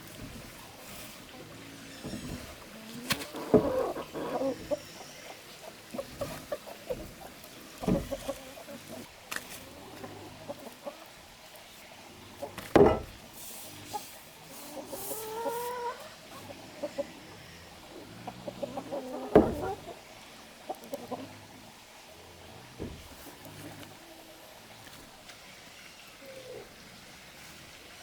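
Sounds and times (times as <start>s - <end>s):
chicken clucks: 1.0s - 11.2s, 13.7s - 21.4s
chicken calling: 1.3s - 9.1s, 14.7s - 20.0s
loud sharp knocks: 12.7s - 13.2s.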